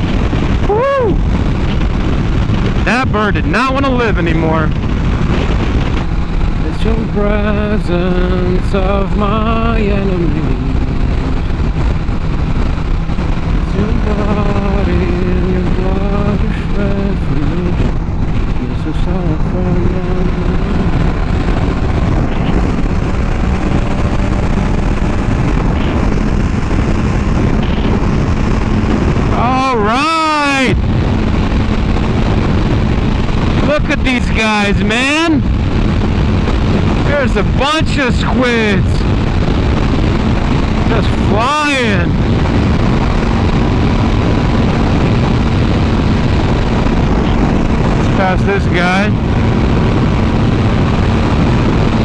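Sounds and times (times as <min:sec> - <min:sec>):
faint motorcycle engine hum: 0:00.0 - 0:52.0
wind rushing on microphone: 0:00.0 - 0:52.0.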